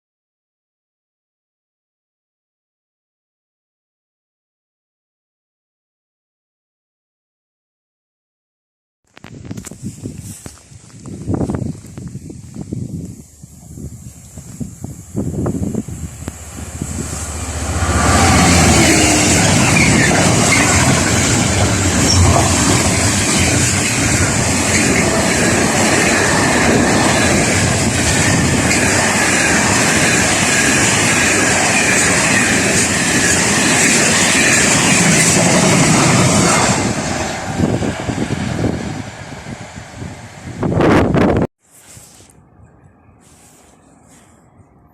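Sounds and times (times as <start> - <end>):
train wheels clattering on rails: 16.2 - 37.2.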